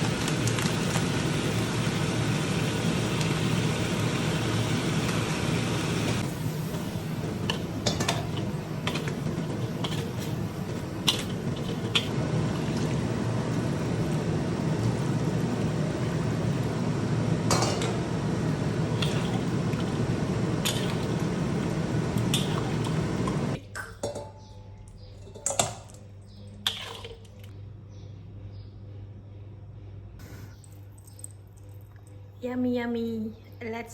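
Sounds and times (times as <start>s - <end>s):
stove rushing noise: 0.0s - 23.6s
spatula clinking and scraping pan: 7.4s - 12.2s.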